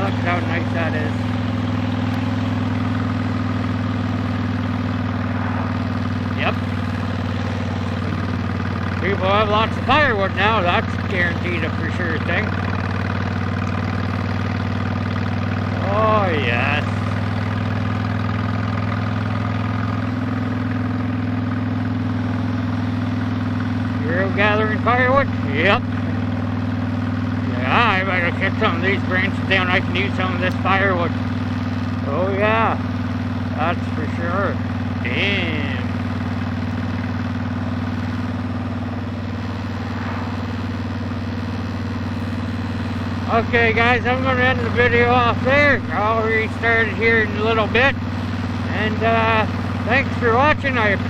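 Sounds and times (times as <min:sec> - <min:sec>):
motorcycle engine idling: 0:00.0 - 0:51.0.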